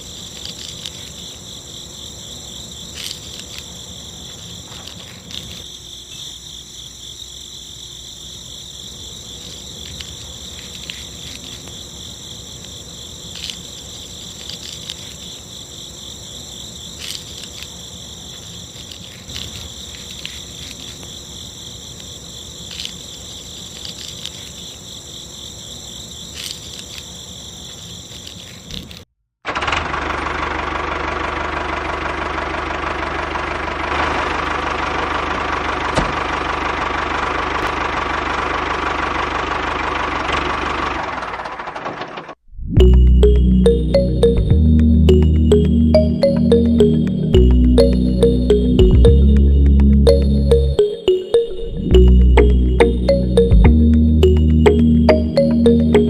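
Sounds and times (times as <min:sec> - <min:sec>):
insects chirping: 0:00.0 - 0:29.0, 0:43.1 - 0:56.0.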